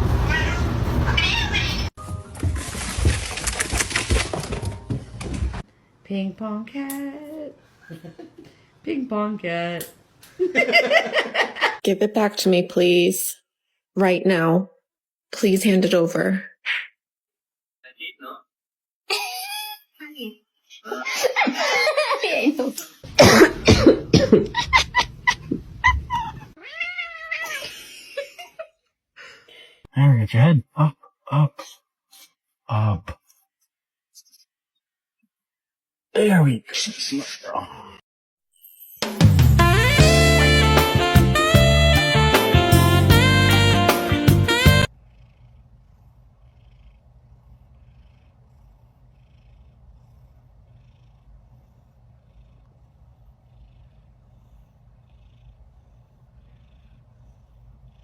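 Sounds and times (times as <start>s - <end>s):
cat meowing: 0.3s - 1.9s, 26.6s - 27.6s
jazz saxophone music: 39.4s - 44.9s
cat purring: 44.5s - 58.0s.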